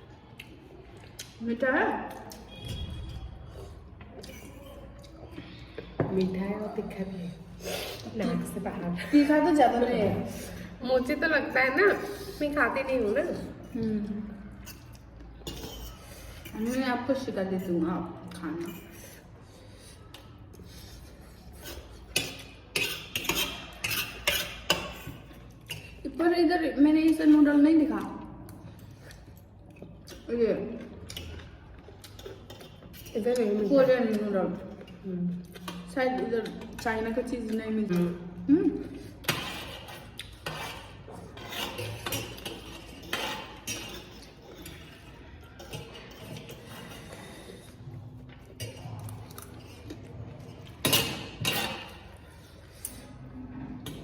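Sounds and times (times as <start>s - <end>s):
cutlery clinking against dishes: 14.6s - 16.8s, 21.6s - 26.0s, 39.2s - 47.5s, 50.6s - 52.2s.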